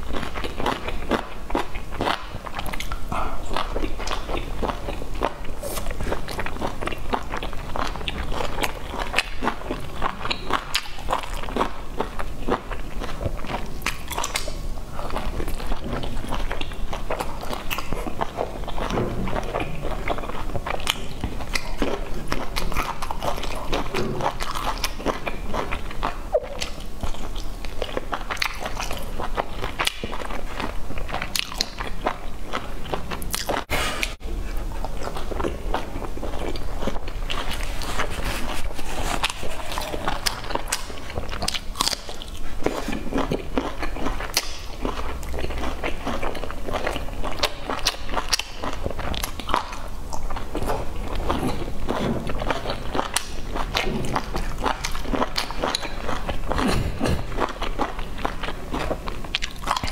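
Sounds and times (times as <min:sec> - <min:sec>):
person chewing food: 0:00.0 - 0:59.9
mouth clicks and smacks: 0:12.7 - 0:30.2.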